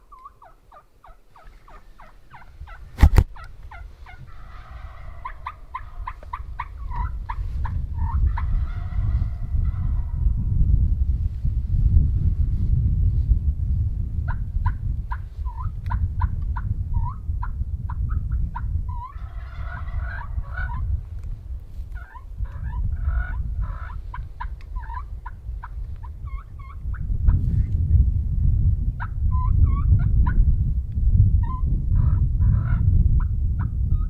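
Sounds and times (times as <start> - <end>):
turkey gobble: 0.0 - 10.3, 14.3 - 20.9, 21.9 - 27.0, 29.0 - 30.4, 31.4 - 34.0
turkeys yelping: 0.0 - 10.3, 14.3 - 16.0, 18.5 - 20.9, 21.9 - 26.9.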